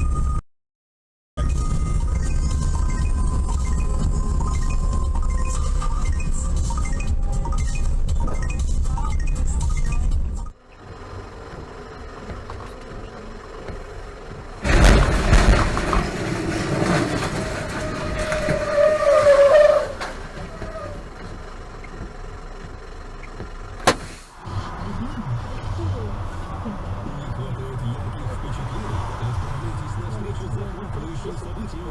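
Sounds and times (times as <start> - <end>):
road noise inside car: 1.4 - 31.9
vehicle collision crash: 14.6 - 21.6, 23.8 - 24.5.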